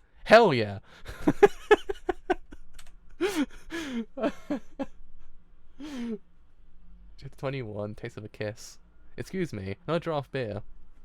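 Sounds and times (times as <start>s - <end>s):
person sighing or gasping: 3.2s - 4.3s, 5.8s - 6.2s.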